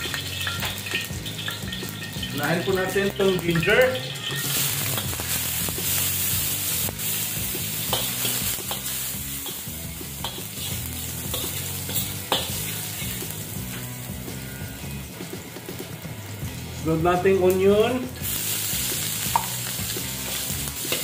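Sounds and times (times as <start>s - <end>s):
metal spatula scraping wok: 0.0s - 14.1s
ginger sizzling in hot oil: 0.0s - 21.0s.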